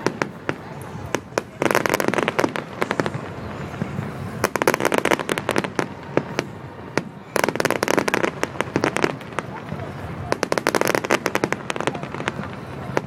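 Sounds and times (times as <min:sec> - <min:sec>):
fireworks crackling bangs: 0:00.0 - 0:13.0.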